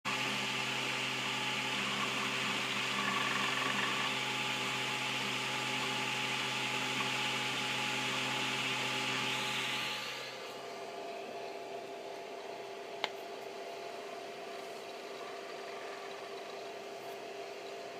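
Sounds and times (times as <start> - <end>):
motor tones: 0.1 - 10.7
whir of fans: 0.1 - 17.9.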